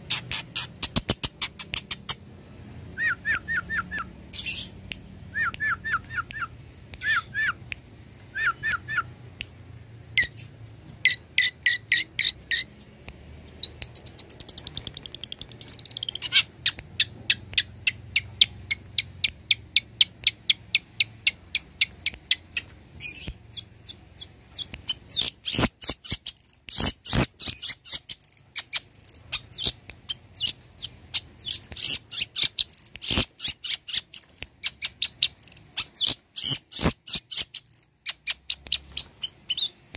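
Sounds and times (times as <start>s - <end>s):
shrike singing chattering song: 10.1s - 39.8s.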